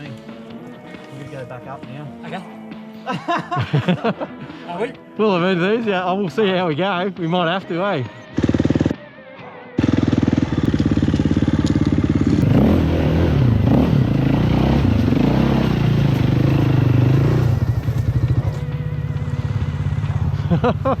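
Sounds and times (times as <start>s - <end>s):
dirt bike engine idling and revving: 8.1s - 9.1s, 9.8s - 21.0s.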